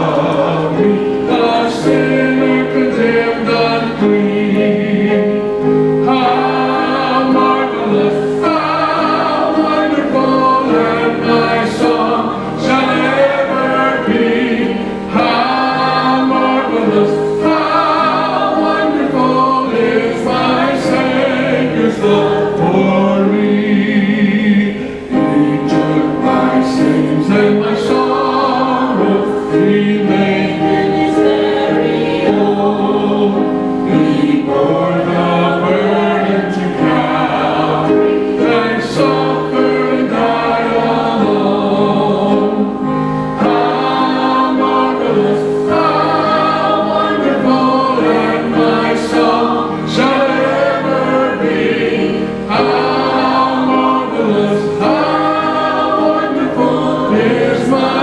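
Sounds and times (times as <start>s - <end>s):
congregation singing a hymn: 0.0s - 58.0s.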